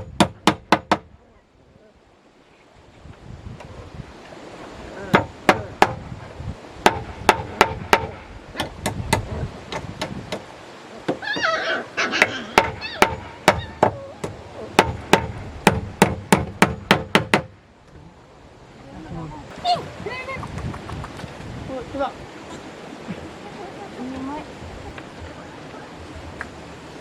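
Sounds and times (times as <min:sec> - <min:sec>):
sharp strikes on wood: 0:00.0 - 0:01.1, 0:05.1 - 0:06.0, 0:06.8 - 0:10.5, 0:12.2 - 0:17.6.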